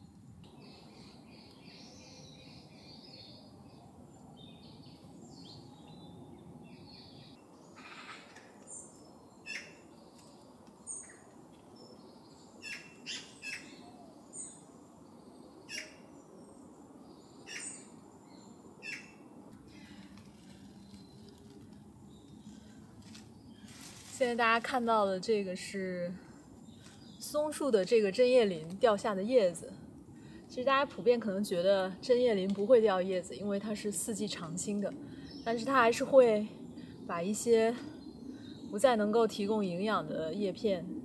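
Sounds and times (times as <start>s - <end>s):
songbird twittering: 10.9s - 14.6s, 15.6s - 19.9s.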